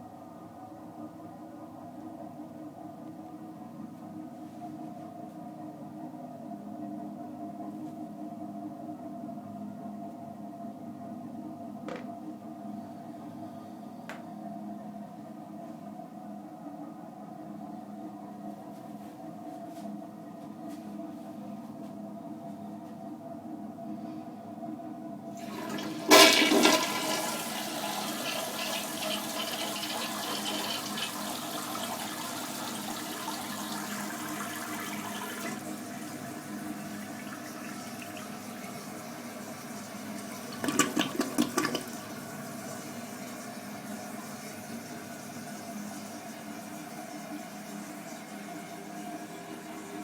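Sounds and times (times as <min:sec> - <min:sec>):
toilet flushing: 0:25.3 - 0:50.0
water running: 0:25.4 - 0:50.0.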